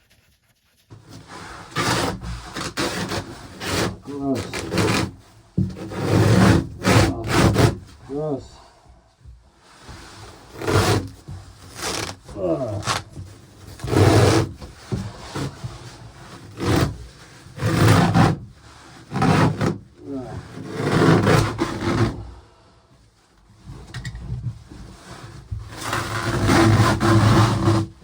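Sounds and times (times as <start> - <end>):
carpet being torn and scraped: 1.2 - 5.2, 5.8 - 7.9, 10.1 - 18.4, 19.0 - 22.2, 25.7 - 27.9.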